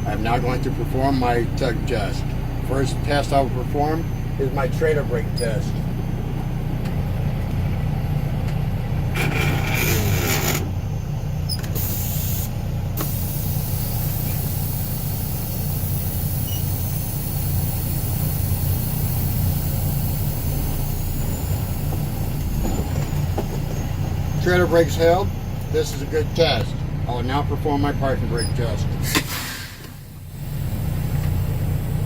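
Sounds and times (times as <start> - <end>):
diesel truck engine running: 0.0 - 32.0
compressed air hiss from brakes: 11.5 - 25.8, 29.0 - 32.0.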